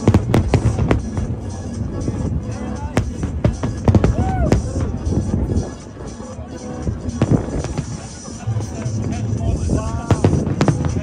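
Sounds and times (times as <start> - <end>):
firework shells bursting: 0.0 - 2.2
music playing: 0.0 - 11.0.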